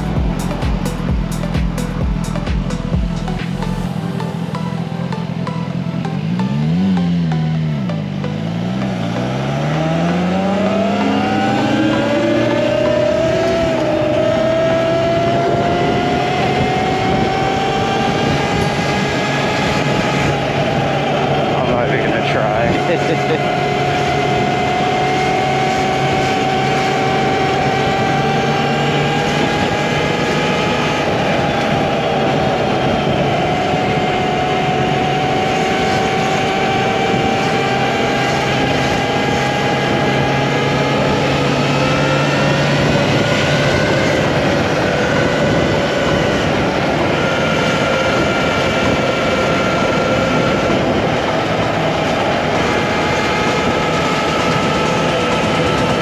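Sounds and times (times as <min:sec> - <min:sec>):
electric motor whining: 0:00.0 - 0:56.0
wind and tyre noise: 0:00.0 - 0:56.0.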